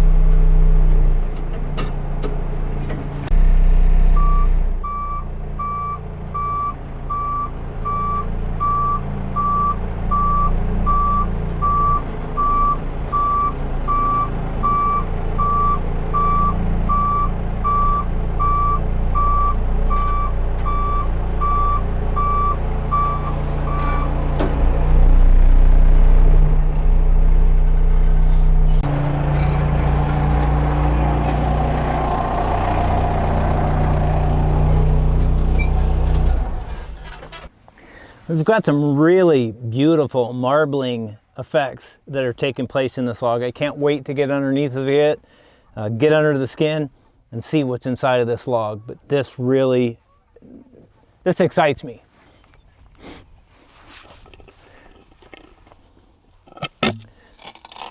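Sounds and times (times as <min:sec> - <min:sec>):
diesel engine running: 0:00.0 - 0:38.1, 0:56.5 - 0:57.9
reversing alarm beeping: 0:04.1 - 0:24.1.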